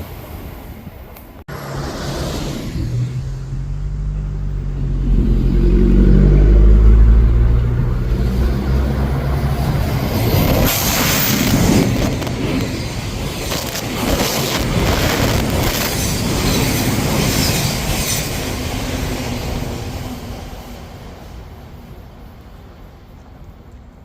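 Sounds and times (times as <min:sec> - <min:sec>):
electric train rumbling past: 0:00.0 - 0:24.0
wheels hissing on rail: 0:01.5 - 0:03.9, 0:08.1 - 0:24.0.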